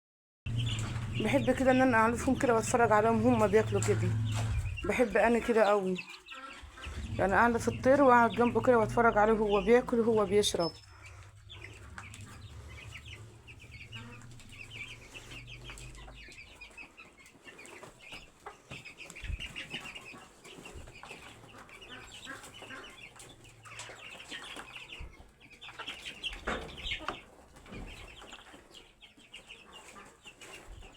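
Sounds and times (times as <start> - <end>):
low rumble: 0.5 - 5.4, 6.6 - 16.4
chickens clucking and cheeping: 0.5 - 30.9.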